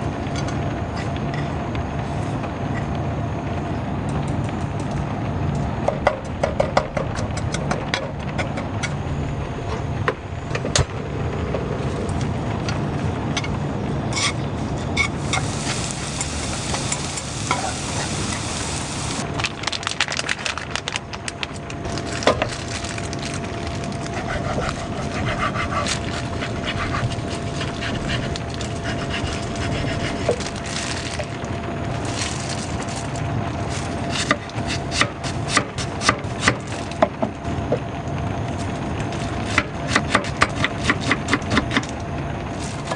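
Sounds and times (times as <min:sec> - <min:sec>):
heavy rain: 0:15.2 - 0:19.2.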